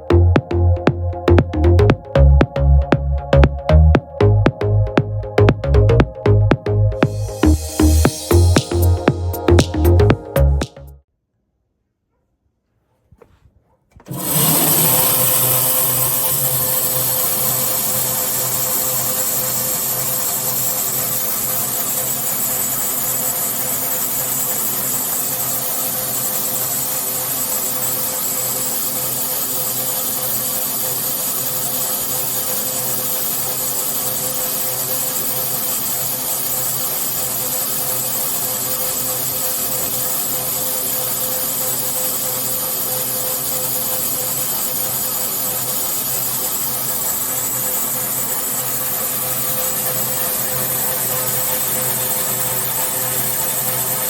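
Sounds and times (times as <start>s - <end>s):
band saw running: 7.1s - 9.7s, 14.1s - 54.0s.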